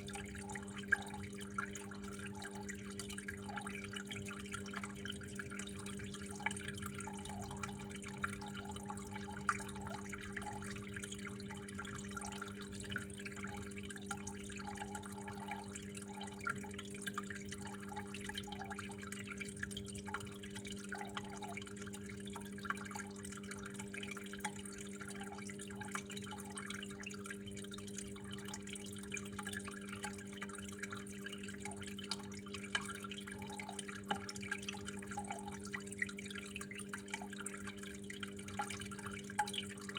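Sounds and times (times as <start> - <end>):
water flowing and dripping: 0.0 - 39.9.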